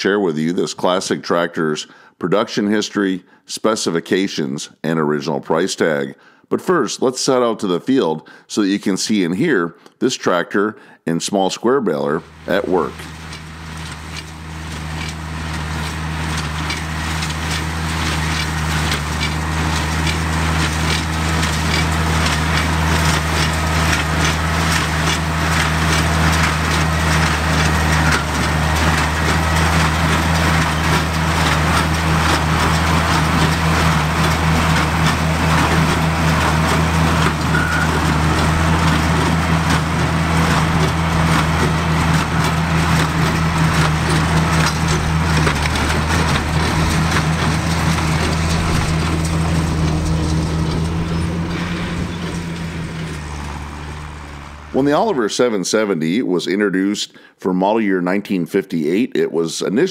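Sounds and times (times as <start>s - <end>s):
tractor engine under load: 12.0s - 55.6s
baler rapid clatter: 12.3s - 55.2s.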